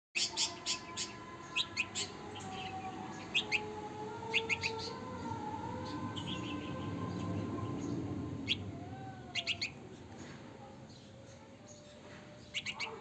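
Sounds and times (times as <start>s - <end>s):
baby bird chirping: 0.2s - 9.9s, 12.4s - 13.0s.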